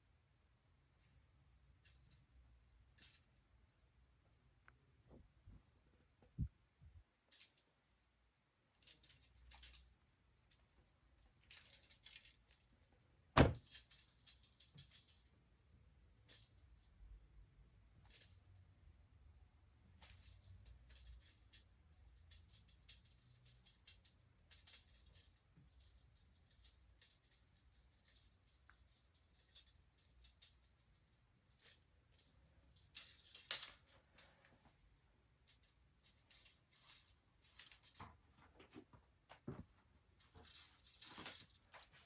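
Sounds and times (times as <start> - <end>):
crinkly rustling and rattling: 8.8 - 12.8, 35.5 - 42.0.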